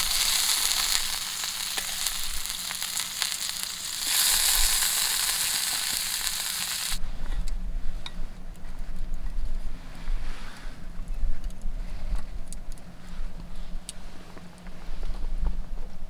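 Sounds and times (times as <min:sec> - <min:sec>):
beef sizzling on a grill: 0:00.0 - 0:07.0.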